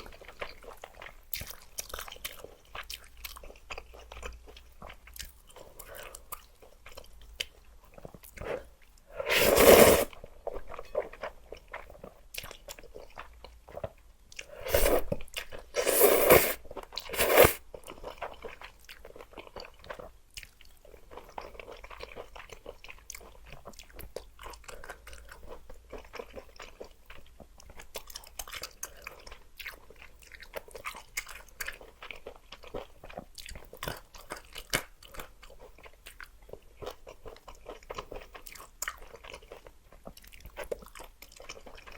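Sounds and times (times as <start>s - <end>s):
chewing with small crunches: 0.0s - 41.9s
loud noodle slurps: 8.4s - 10.2s, 14.5s - 17.6s.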